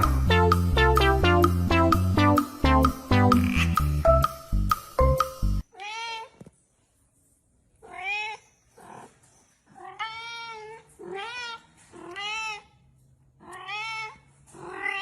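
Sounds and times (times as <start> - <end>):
cat meowing: 7.8 - 9.1, 9.8 - 12.8, 13.4 - 15.0.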